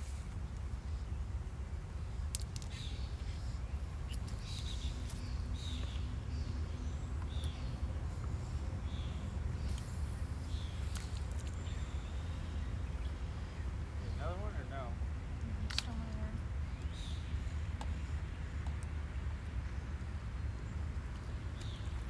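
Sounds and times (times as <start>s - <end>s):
birds chirping: 0.0s - 22.0s
sharp clicks: 15.4s - 16.2s.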